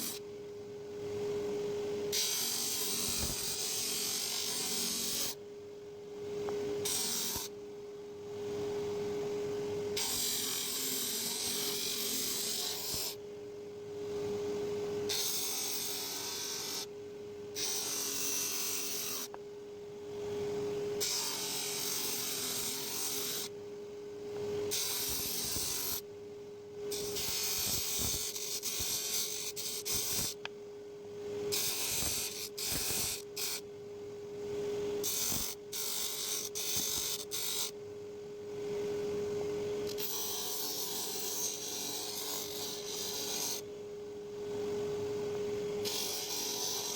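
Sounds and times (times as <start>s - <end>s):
electric power tool humming: 0.0s - 0.2s, 2.1s - 5.4s, 6.9s - 7.5s, 10.0s - 13.2s, 15.1s - 16.9s, 17.6s - 19.4s, 21.0s - 23.5s, 24.7s - 26.0s, 26.9s - 30.4s, 31.5s - 33.6s, 35.0s - 37.7s, 45.8s - 46.9s.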